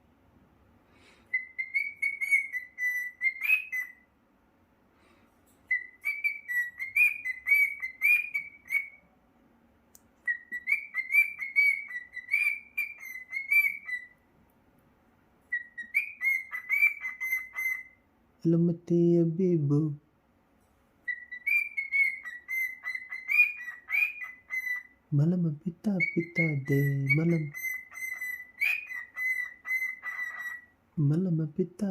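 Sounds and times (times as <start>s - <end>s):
cockatiel whistling: 1.3s - 4.0s, 5.7s - 9.0s, 10.2s - 14.2s, 15.5s - 18.0s, 21.0s - 24.9s, 26.0s - 30.7s.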